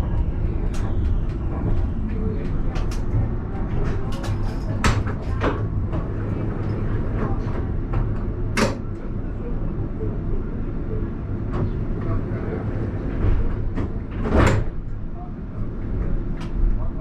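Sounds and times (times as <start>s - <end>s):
tram low hum: 0.0s - 17.0s.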